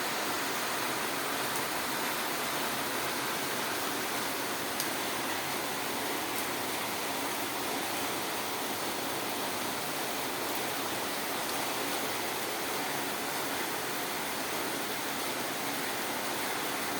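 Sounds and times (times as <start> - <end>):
heavy rain falling: 0.0 - 16.9.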